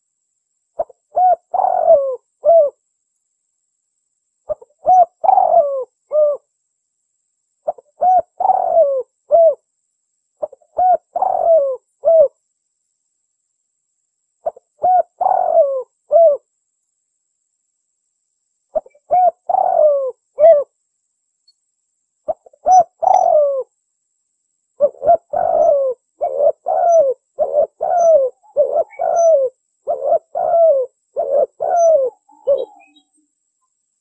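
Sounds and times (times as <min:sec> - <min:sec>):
dove cooing: 0:00.8 - 0:02.8, 0:04.5 - 0:06.5, 0:07.6 - 0:09.6, 0:10.4 - 0:12.4, 0:14.4 - 0:16.5, 0:18.7 - 0:20.7, 0:22.3 - 0:23.7, 0:24.8 - 0:33.1.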